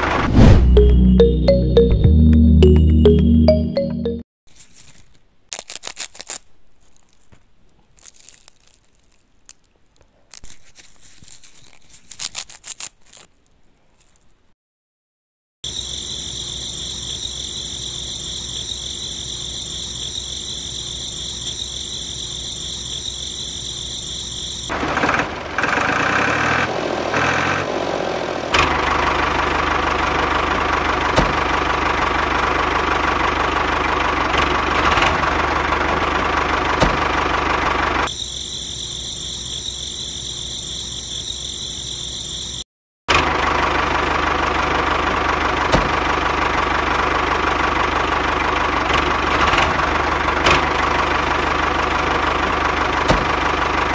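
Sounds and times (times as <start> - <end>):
grass stalks crackling and rustling: 4.5 - 14.5
miniature tractor engine running: 24.7 - 26.5, 28.6 - 38.1, 43.1 - 53.9.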